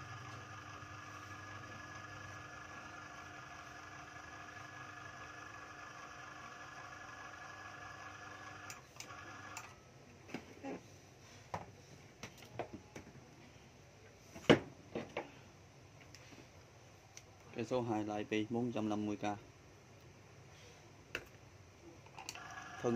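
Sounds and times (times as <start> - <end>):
cordless drill motor running: 0.0 - 9.6, 22.3 - 22.9.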